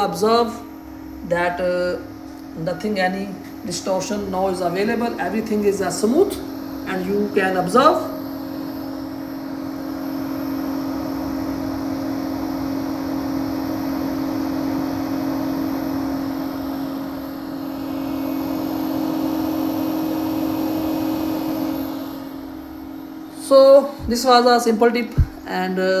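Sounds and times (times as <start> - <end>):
cooling fans humming: 0.0 - 26.0.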